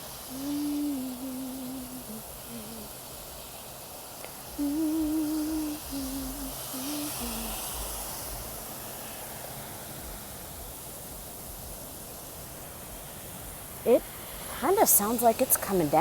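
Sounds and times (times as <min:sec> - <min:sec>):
person humming a tune: 0:00.0 - 0:03.1, 0:04.5 - 0:08.7
heavy rain downpour: 0:00.0 - 0:16.0.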